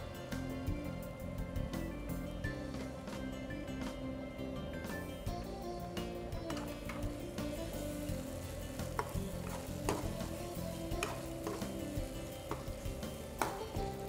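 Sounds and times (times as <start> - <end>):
meat sizzling in a pan: 6.5 - 14.0.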